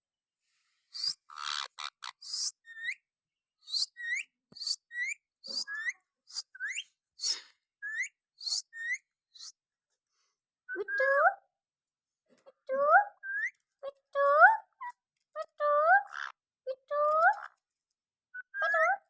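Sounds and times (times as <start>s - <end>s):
parrot chirping and whistling: 0.9s - 3.0s, 3.6s - 9.5s.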